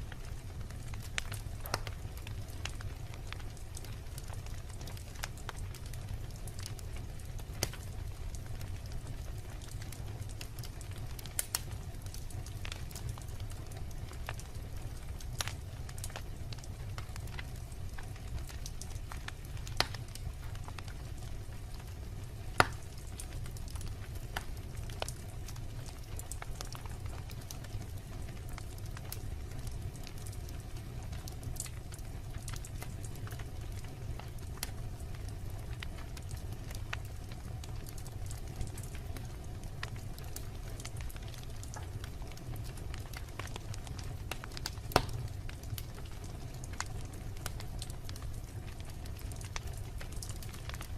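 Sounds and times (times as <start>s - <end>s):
logs crackling in fireplace: 0.0s - 50.9s
low fire rumble: 0.0s - 50.9s
loud wood snaps: 1.2s - 2.0s, 22.6s - 22.8s, 44.9s - 45.2s.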